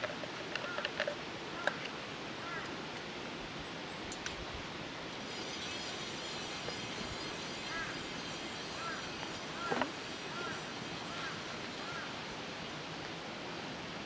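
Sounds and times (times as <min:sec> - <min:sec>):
steady rushing hiss: 0:00.0 - 0:14.0
high warbling birdsong: 0:03.5 - 0:13.0.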